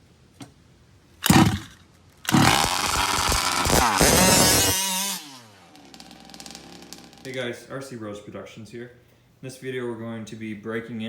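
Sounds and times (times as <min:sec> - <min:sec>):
small rc car engine revving: 0:01.2 - 0:07.2.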